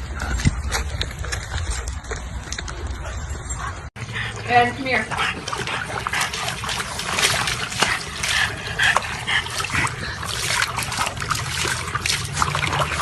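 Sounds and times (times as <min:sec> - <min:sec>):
dog splashing in water tub: 0:04.0 - 0:13.0.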